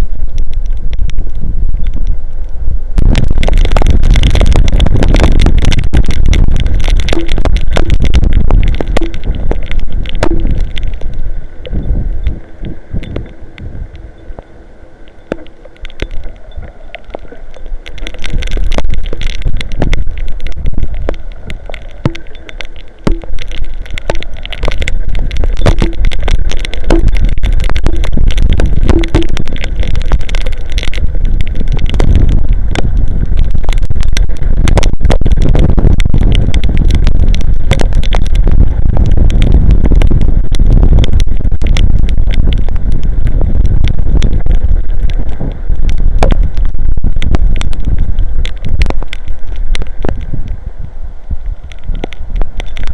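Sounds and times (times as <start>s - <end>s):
wind buffeting microphone: 0.0s - 14.0s, 18.2s - 22.2s, 23.1s - 52.9s
heavy rain hitting microphone: 0.0s - 52.9s.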